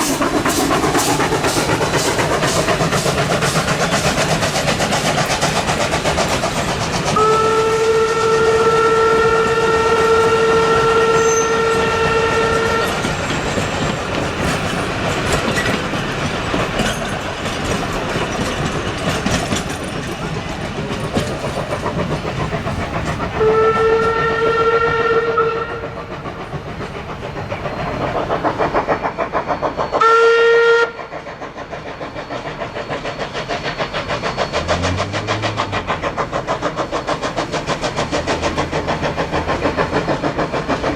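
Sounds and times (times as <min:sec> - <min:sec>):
rhythmic train running noise: 0:00.0 - 0:40.9
steam whistle blasts: 0:07.1 - 0:13.1, 0:23.4 - 0:25.8, 0:30.0 - 0:31.0.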